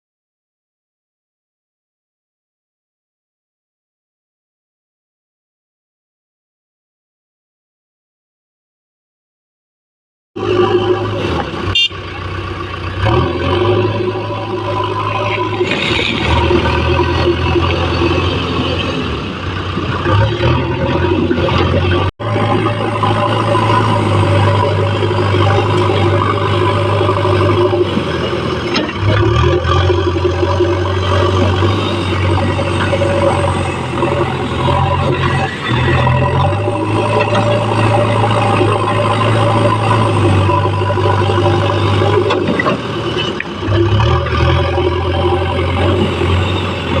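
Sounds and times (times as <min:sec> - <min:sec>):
diesel engine running under work: 0:10.4 - 0:47.0.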